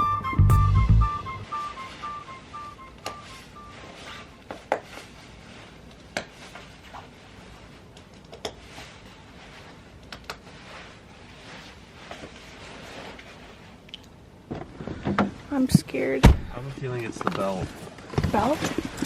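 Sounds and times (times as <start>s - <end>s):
background music: 0.0s - 4.2s
faint room hiss: 0.0s - 19.0s.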